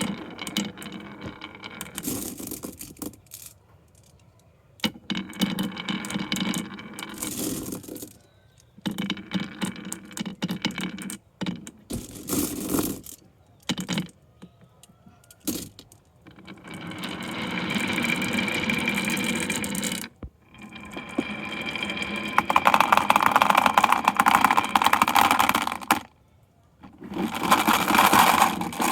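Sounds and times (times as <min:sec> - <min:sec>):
marbles rolling and clattering: 0:00.0 - 0:04.2, 0:04.8 - 0:08.2, 0:08.8 - 0:14.2, 0:15.3 - 0:26.1, 0:26.8 - 0:28.9.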